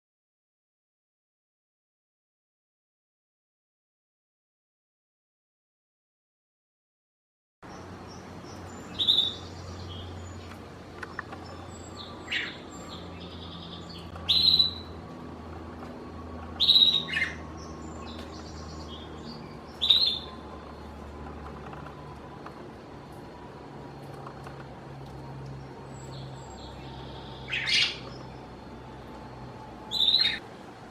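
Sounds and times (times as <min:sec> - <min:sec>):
soft bird chatter: 0:07.6 - 0:30.9
budgerigar chirping: 0:08.8 - 0:10.1, 0:11.2 - 0:15.0, 0:16.6 - 0:17.7, 0:18.9 - 0:20.4, 0:26.6 - 0:28.2, 0:29.9 - 0:30.4.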